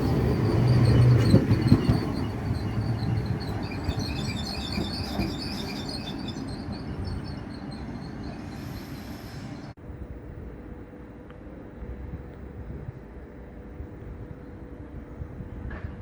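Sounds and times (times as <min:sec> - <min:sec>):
train rumble: 0:00.0 - 0:16.0
short high squeaks: 0:00.4 - 0:09.7.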